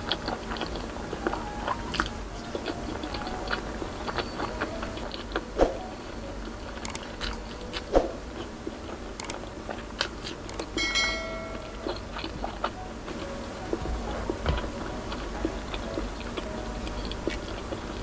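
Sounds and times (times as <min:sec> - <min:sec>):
wet chewing mouth clicks: 0:00.0 - 0:05.5, 0:06.8 - 0:08.5, 0:09.2 - 0:10.8, 0:11.5 - 0:14.4.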